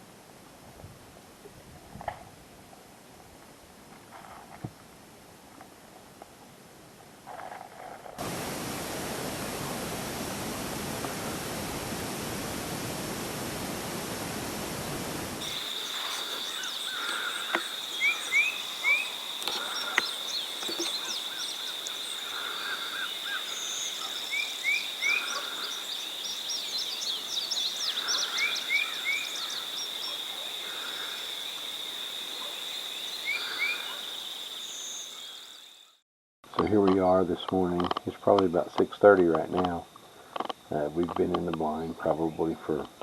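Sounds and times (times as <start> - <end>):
steady hiss: 8.2 - 35.5
songbirds singing: 15.4 - 31.7, 32.4 - 35.9.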